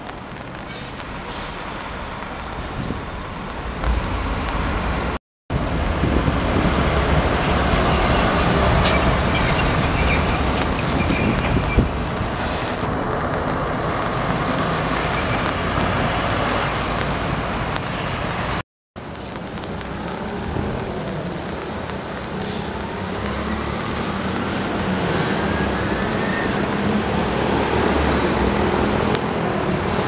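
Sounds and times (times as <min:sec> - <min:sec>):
train wheels rumbling on rail: 0:00.3 - 0:18.6.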